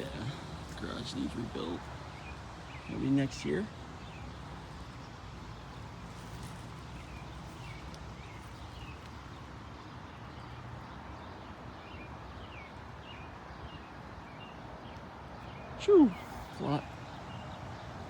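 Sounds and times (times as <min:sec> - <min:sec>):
outdoor background hiss: 0:00.0 - 0:18.0
small birds chirping: 0:00.0 - 0:18.0.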